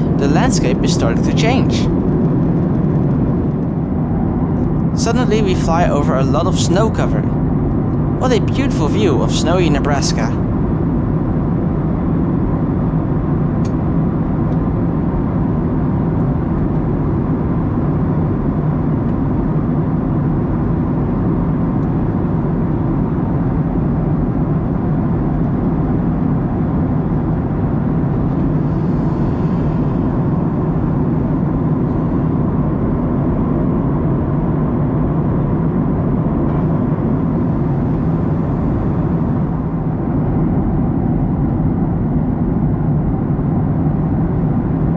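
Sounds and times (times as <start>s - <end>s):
airplane cabin roar: 0.0s - 2.2s, 4.4s - 11.2s.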